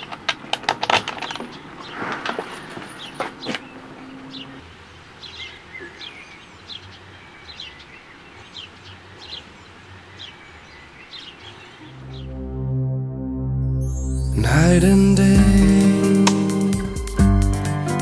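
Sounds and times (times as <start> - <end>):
steady background noise: 0.0 - 12.0
bird chirping: 1.4 - 12.6
soft music with low notes: 11.8 - 18.0.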